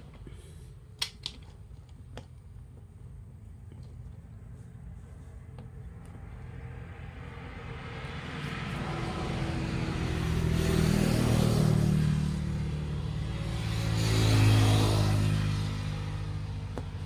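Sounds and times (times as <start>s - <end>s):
vehicle engine approaching: 4.1s - 17.0s.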